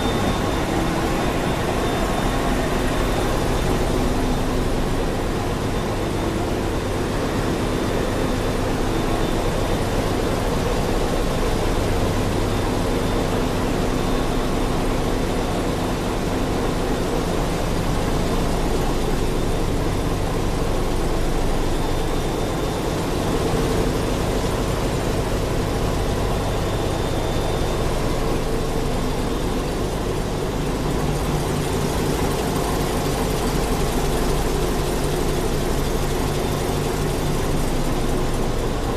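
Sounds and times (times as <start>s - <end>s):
faint high whine: 0.0s - 17.2s
engine room machinery din: 0.0s - 38.9s.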